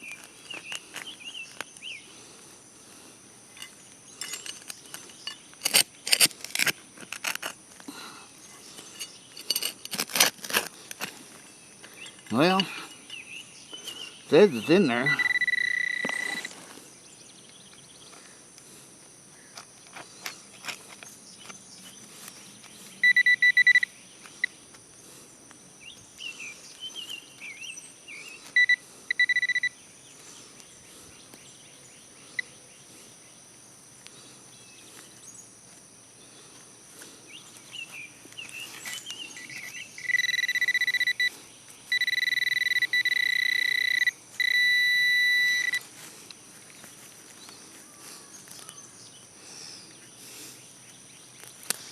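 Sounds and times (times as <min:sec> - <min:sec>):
insects buzzing: 0:00.0 - 0:51.9
clicks and scrapes: 0:03.6 - 0:07.9, 0:08.8 - 0:11.2
metal detector high-pitched tone: 0:14.3 - 0:16.6, 0:23.0 - 0:24.5, 0:28.5 - 0:29.8, 0:39.4 - 0:45.9.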